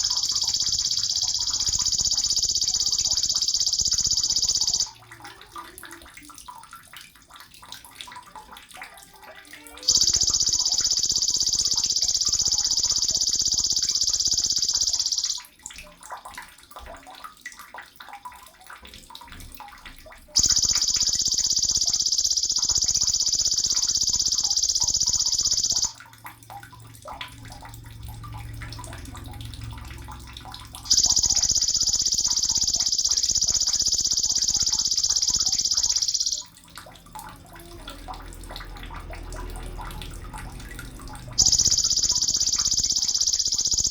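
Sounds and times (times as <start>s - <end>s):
bird buzzing trill: 0.0s - 4.9s, 9.9s - 15.4s, 20.4s - 25.9s, 30.8s - 36.4s, 41.4s - 43.9s.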